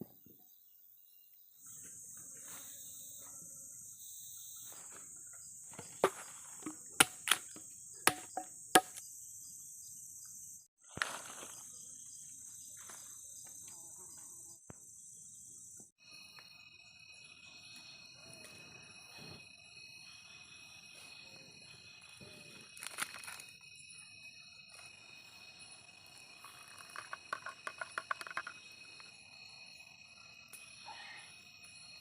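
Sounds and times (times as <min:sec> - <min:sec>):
high-pitched insect buzzing: 0:11.6 - 0:18.4.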